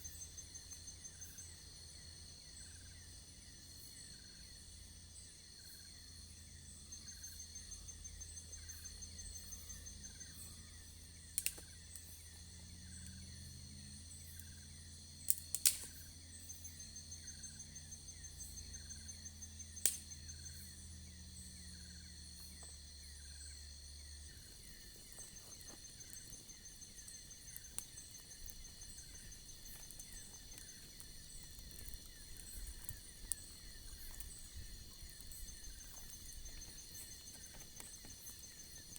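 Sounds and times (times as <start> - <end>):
insects chirping: 0.0 - 38.9
sharp clicks: 24.8 - 38.9.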